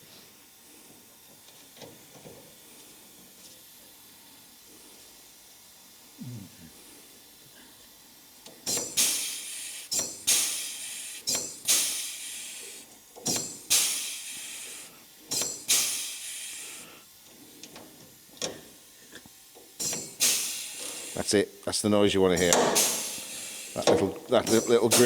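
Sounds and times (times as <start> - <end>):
air hiss: 8.6 - 17.1, 19.8 - 21.4, 22.4 - 25.0.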